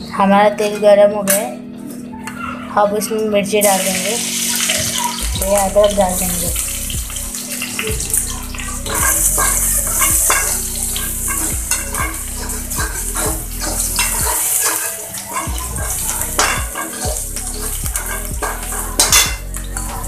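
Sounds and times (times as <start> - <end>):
food sizzling in hot oil: 3.6 - 20.0
metal spatula scraping pan: 7.7 - 20.0.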